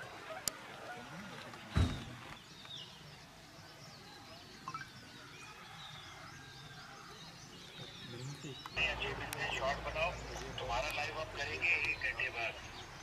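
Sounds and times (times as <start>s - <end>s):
birds chirping: 0.0s - 13.0s
low thump: 1.7s - 2.2s.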